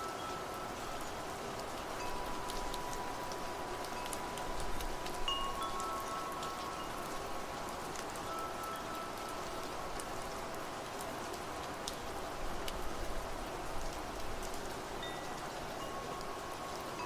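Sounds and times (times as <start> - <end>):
wind chimes ringing: 0.0 - 10.3, 15.0 - 17.0
steady rain: 0.0 - 17.0.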